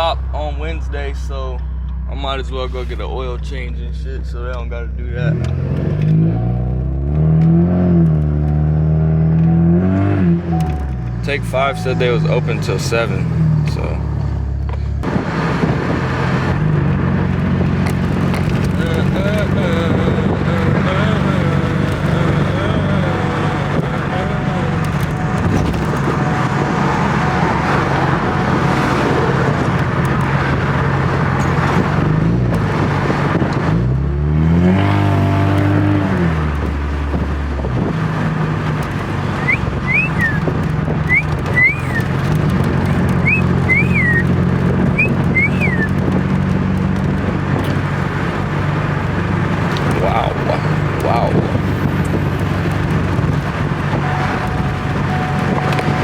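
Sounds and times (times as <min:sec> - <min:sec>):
car engine running: 0:00.0 - 0:56.0
short high chirps: 0:39.4 - 0:40.4, 0:41.1 - 0:42.1, 0:43.2 - 0:44.3, 0:45.0 - 0:45.9.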